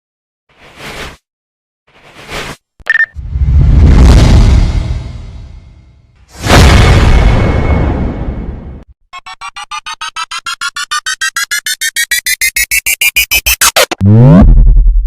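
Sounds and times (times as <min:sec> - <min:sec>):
boom: 0:03.2 - 0:08.8
rising electronic beeps: 0:09.2 - 0:15.0.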